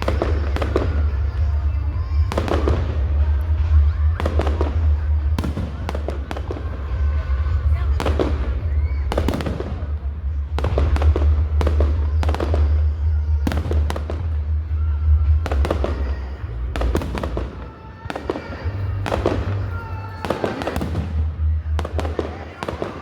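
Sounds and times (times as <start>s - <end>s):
steady low rumble: 0.0s - 17.6s
fireworks bursting in loud bangs: 0.0s - 23.0s.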